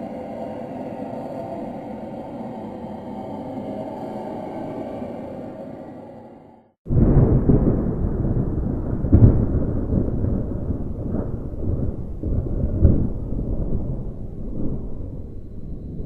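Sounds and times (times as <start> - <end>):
rumbling thunder: 6.9 - 16.0.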